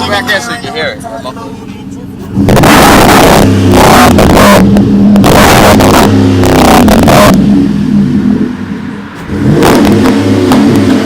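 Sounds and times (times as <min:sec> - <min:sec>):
pickup truck engine revving: 0:02.2 - 0:11.0.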